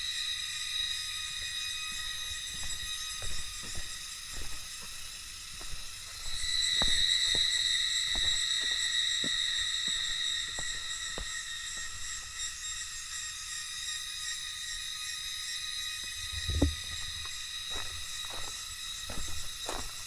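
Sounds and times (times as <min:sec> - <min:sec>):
cicadas buzzing: 0:00.0 - 0:20.0
soft low thumps: 0:16.2 - 0:18.4.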